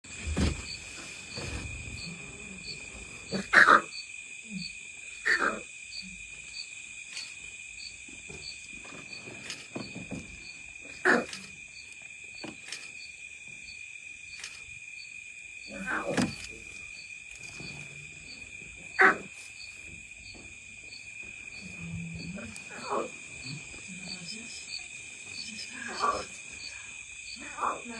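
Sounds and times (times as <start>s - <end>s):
insects chirping: 0.0s - 27.9s
lion cubs calling: 1.3s - 6.2s, 10.8s - 11.6s, 15.7s - 16.8s, 18.8s - 19.4s, 21.6s - 27.9s.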